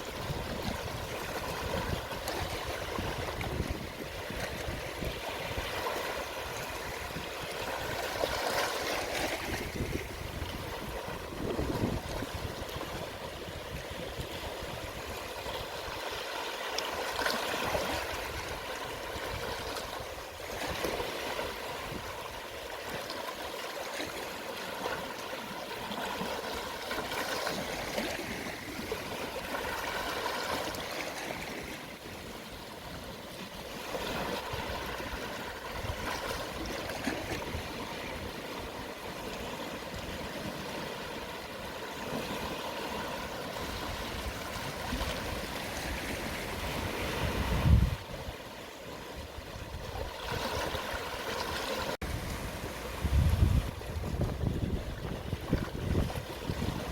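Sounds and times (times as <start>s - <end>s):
sea waves lapping on shore: 0.0s - 56.9s.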